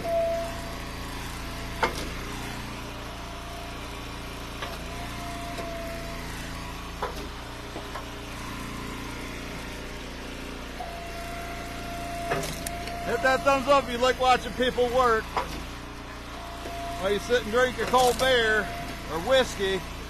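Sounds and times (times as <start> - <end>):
wood splitter engine running: 0.0 - 20.0.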